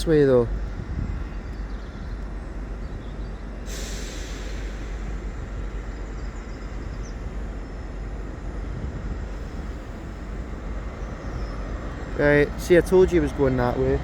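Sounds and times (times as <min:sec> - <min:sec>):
train rumbling: 0:00.0 - 0:14.0
hiss: 0:03.7 - 0:05.4.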